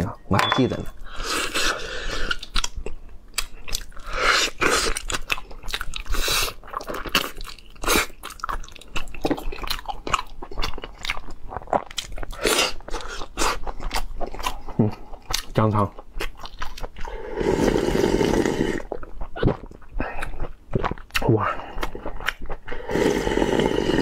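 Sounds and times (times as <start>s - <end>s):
chewing and biting meat: 2.3s - 17.1s, 18.9s - 22.7s.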